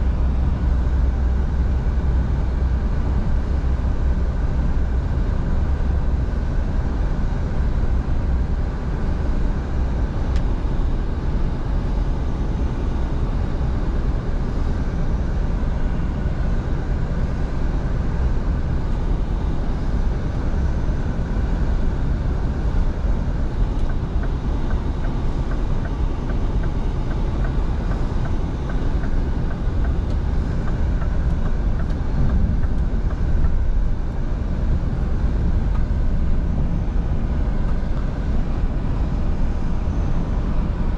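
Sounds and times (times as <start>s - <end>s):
road and tyre noise: 0.0s - 40.9s
truck engine running: 17.8s - 40.9s.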